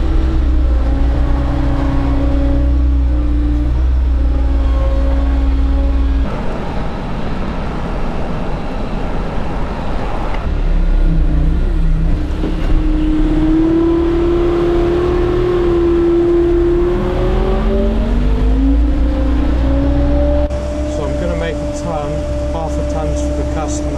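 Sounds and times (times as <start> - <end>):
diesel engine revving: 0.0 - 6.3, 10.5 - 23.9.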